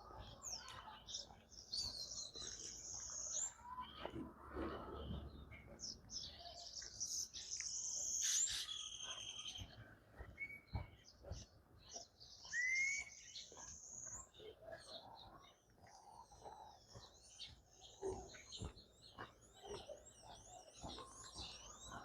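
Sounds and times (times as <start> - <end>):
birds singing: 0.0 - 22.0
rising bird whistle: 12.5 - 13.2.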